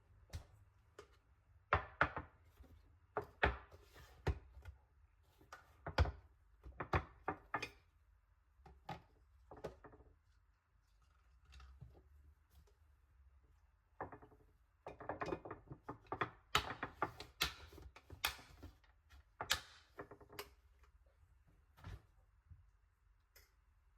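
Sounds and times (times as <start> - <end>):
kitchen items knocking and clinking: 0.3 - 2.6, 14.0 - 20.6.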